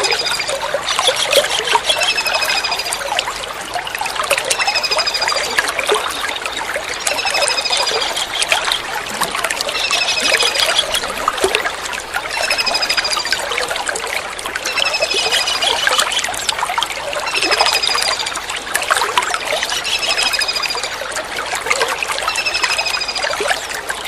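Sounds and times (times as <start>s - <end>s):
trickling water: 0.0s - 24.0s.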